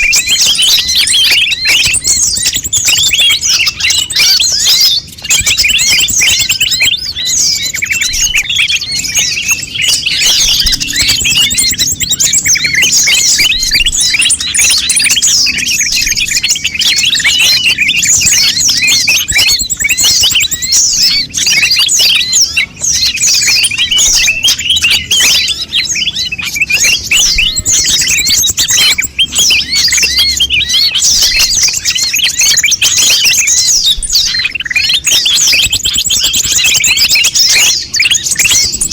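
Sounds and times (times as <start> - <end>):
bird chirping and twittering: 0.0 - 38.9.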